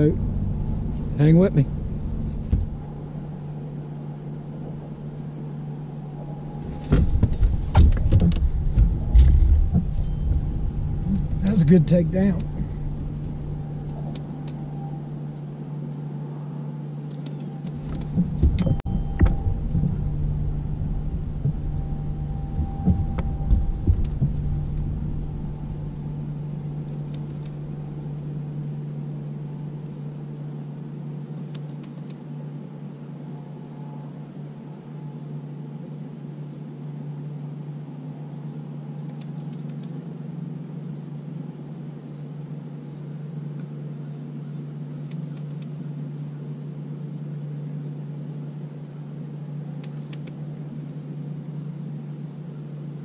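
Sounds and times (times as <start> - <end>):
boat motor running: 0.0 - 15.9, 17.6 - 30.1
knocks and bumps in boat: 2.3 - 2.9, 6.6 - 11.5, 17.8 - 26.2.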